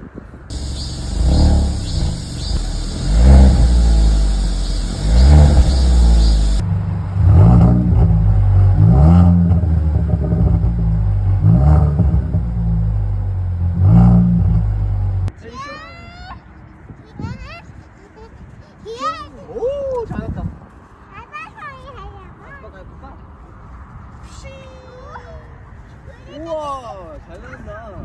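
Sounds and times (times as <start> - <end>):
car engine revving: 0.5 - 15.3
low exhaust drone: 0.5 - 15.3.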